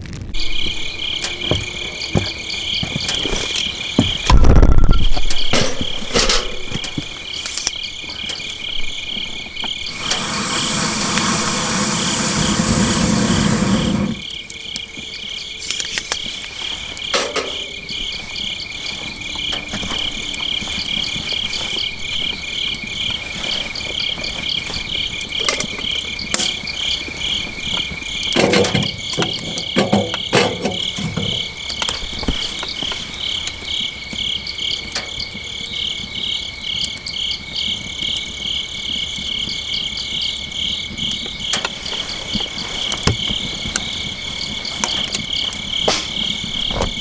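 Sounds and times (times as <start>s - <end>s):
crickets chirping: 0.1s - 47.0s
light clicks and knocks: 15.6s - 33.7s.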